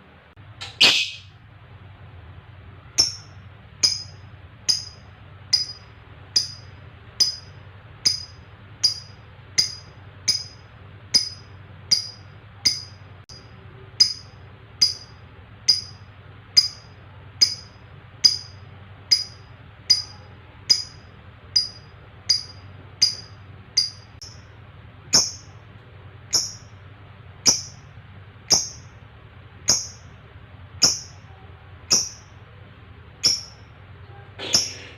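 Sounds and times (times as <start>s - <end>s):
bird chirping: 0.6s - 1.4s, 25.1s - 25.6s, 33.2s - 34.9s.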